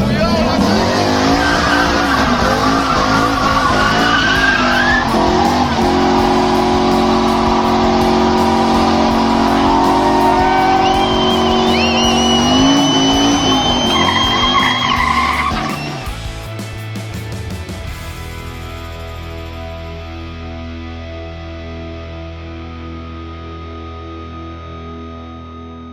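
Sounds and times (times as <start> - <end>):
car engine at high revs: 0.0 - 16.2
tyres squealing: 0.4 - 16.1.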